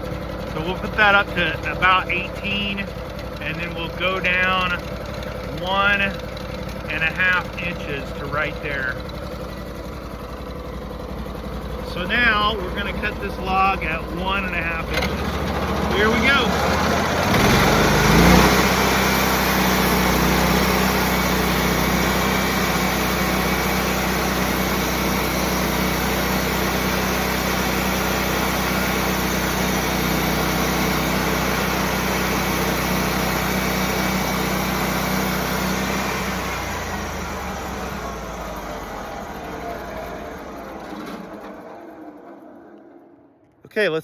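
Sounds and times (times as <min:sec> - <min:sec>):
sawmill engine running: 0:00.0 - 0:44.0
band saw cutting wood: 0:12.0 - 0:43.0.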